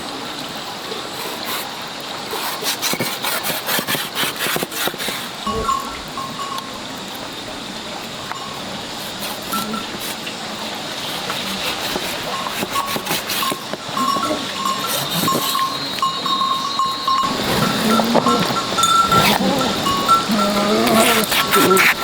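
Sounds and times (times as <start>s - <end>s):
farm animals bleating: 5.4s - 6.6s, 17.2s - 22.0s.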